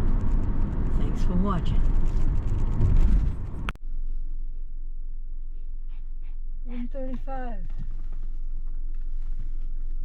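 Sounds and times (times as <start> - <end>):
low rumble: 0.0 - 7.0
road and wind noise: 0.0 - 10.0.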